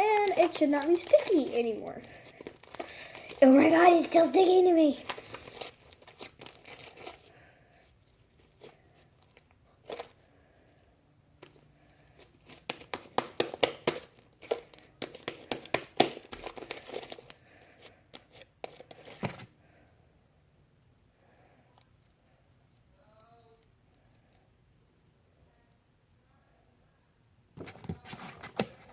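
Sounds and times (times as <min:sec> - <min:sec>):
slime crackling and popping: 0:00.0 - 0:07.2, 0:11.4 - 0:17.4.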